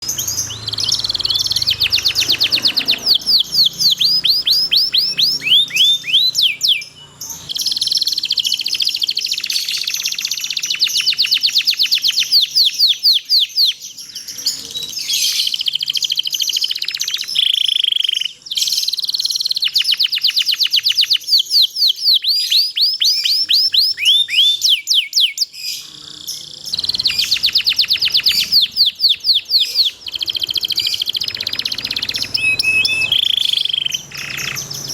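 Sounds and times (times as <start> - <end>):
canary singing: 0.0 - 34.9.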